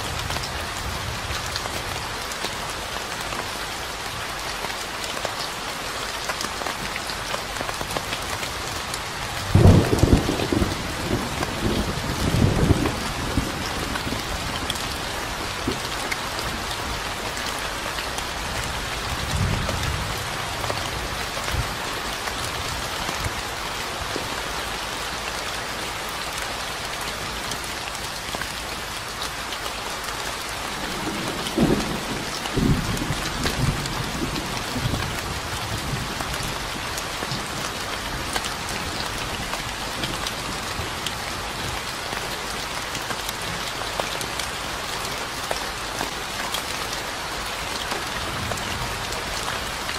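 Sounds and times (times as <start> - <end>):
rain falling: 0.0 - 49.9
thunder rumbling: 9.4 - 17.3, 30.7 - 36.1.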